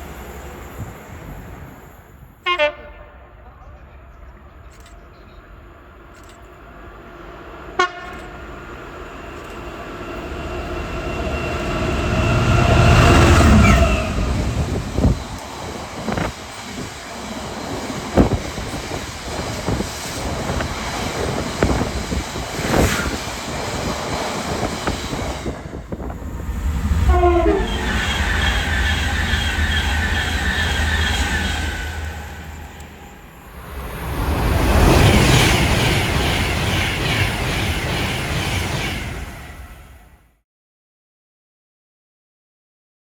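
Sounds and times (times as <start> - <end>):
train rumble: 0.0 - 40.2
train horn: 2.4 - 3.5, 7.8 - 8.4, 27.0 - 28.9
wheels clacking over rail joints: 12.6 - 27.0.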